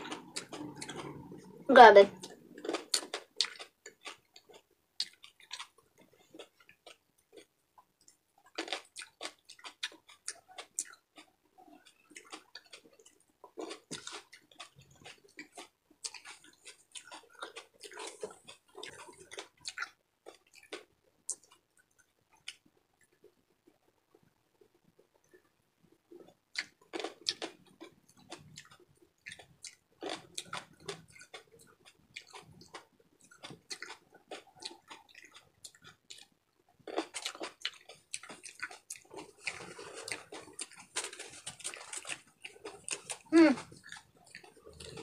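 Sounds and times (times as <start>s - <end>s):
person chewing and crunching: 0.0s - 1.6s, 2.2s - 23.9s, 26.1s - 45.0s.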